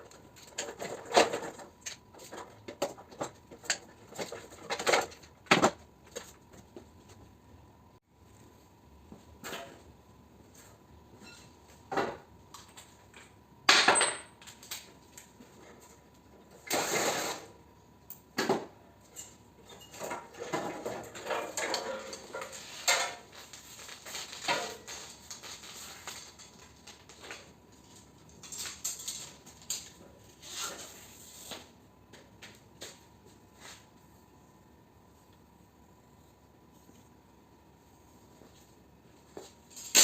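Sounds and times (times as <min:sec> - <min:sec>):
metal parts clanking and rattling: 0:00.0 - 0:05.4, 0:19.0 - 0:23.3, 0:23.9 - 0:30.0, 0:39.7 - 0:40.0.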